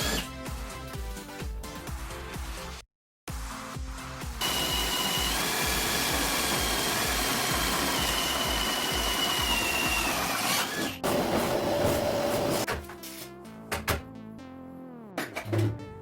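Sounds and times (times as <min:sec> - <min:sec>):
power tool whining: 0:00.0 - 0:00.3, 0:04.4 - 0:12.7
background music with beat: 0:00.1 - 0:10.1, 0:11.0 - 0:16.0.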